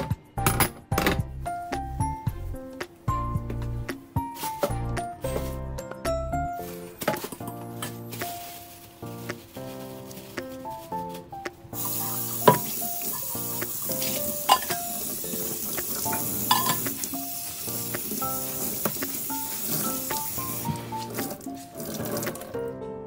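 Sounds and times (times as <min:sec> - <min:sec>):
soft background music: 0:00.0 - 0:23.0
food sizzling in frying pan: 0:11.8 - 0:21.0
utensil knocking against pan: 0:12.4 - 0:13.2, 0:14.0 - 0:14.9, 0:15.8 - 0:17.1.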